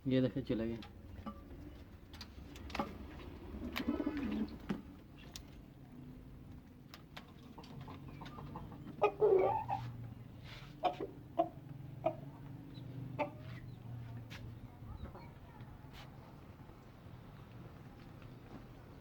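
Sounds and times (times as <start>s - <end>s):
chickens clucking: 7.2s - 14.2s.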